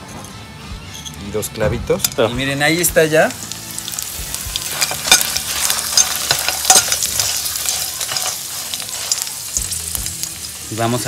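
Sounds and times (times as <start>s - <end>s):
chiles and garlic sizzling in a pan: 1.8s - 11.0s
utensil clicking against pan: 3.8s - 10.2s.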